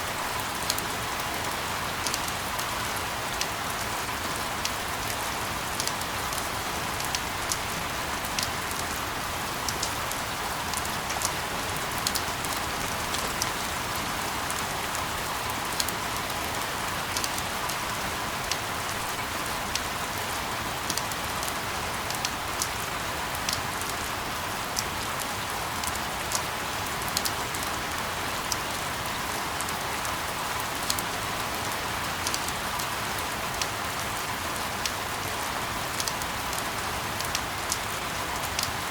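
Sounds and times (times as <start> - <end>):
rain hissing: 7.3 - 16.0.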